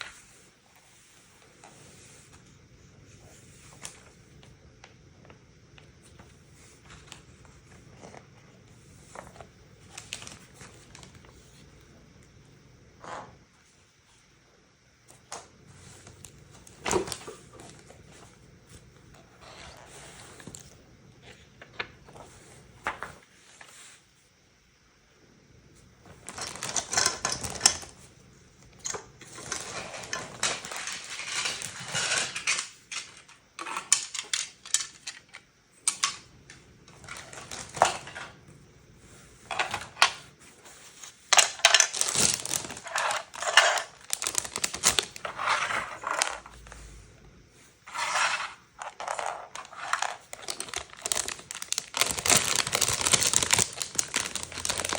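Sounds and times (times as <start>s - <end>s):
plastic bricks clattering: 28.8s - 36.3s, 41.3s - 46.5s, 47.9s - 54.9s.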